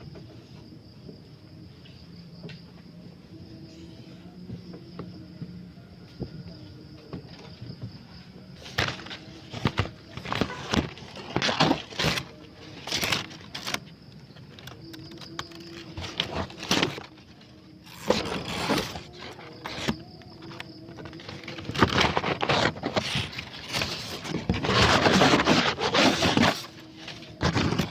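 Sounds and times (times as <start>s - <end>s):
dry leaves and twigs rustling: 8.6s - 27.9s.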